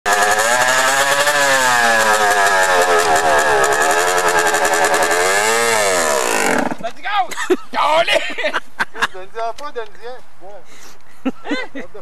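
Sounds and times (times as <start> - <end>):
dirt bike engine revving: 0.0 - 6.8.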